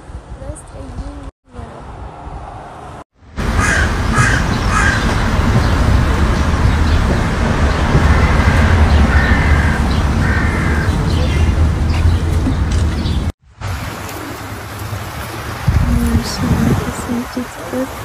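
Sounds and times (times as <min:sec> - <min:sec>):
wind rumble on microphone: 0:00.0 - 0:18.0
bird cawing: 0:03.4 - 0:05.8, 0:07.9 - 0:11.6
longer bird calls: 0:03.5 - 0:07.2, 0:07.8 - 0:13.3.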